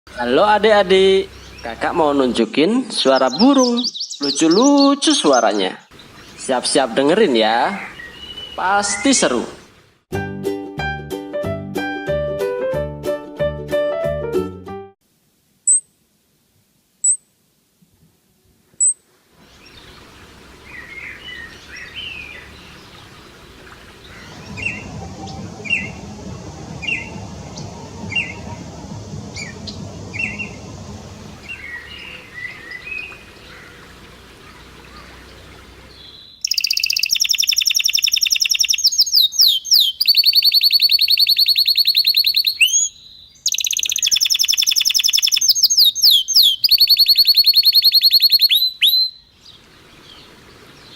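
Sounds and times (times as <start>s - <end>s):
birds chirping: 0.1s - 10.0s, 18.8s - 50.9s
outdoor background noise: 0.1s - 10.1s, 15.0s - 50.9s
loud high-pitched bird call: 35.9s - 49.3s.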